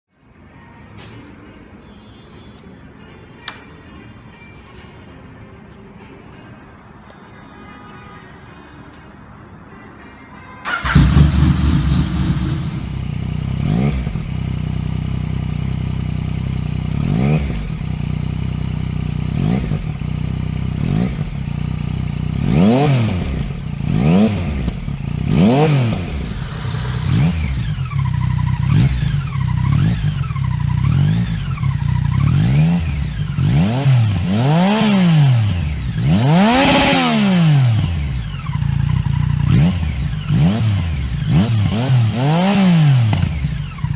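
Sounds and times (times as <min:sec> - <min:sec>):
exhaust crackle: 0:10.7 - 0:30.3
motorcycle engine revving: 0:10.7 - 0:43.9.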